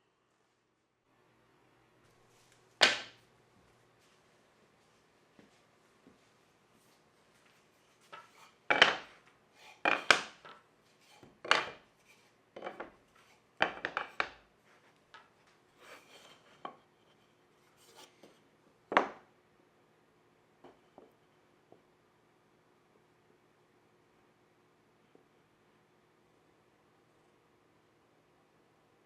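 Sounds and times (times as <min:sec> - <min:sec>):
wood knocking on bench: 0:02.8 - 0:03.2, 0:08.7 - 0:09.1, 0:09.8 - 0:10.6, 0:13.6 - 0:14.4
wood scraping: 0:07.5 - 0:18.4.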